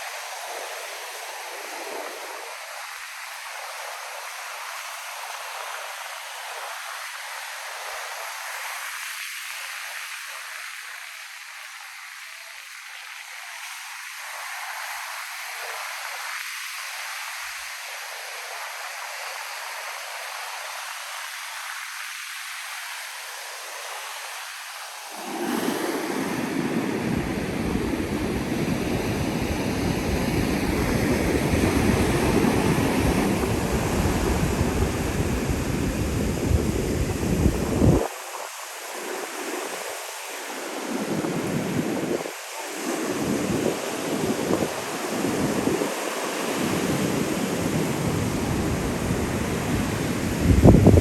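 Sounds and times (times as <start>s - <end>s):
ocean surf breaking on sand: 25.0s - 51.0s.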